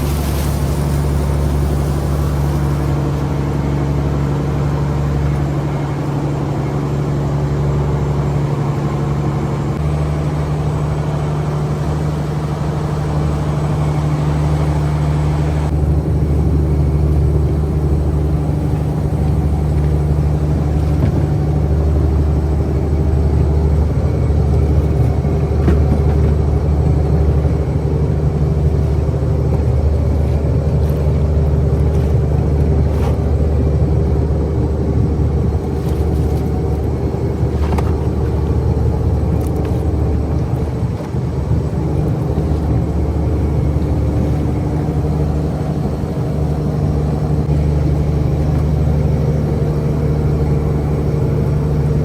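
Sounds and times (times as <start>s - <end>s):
water and wind hiss: 0.0s - 8.6s
boat engine humming: 0.0s - 52.0s.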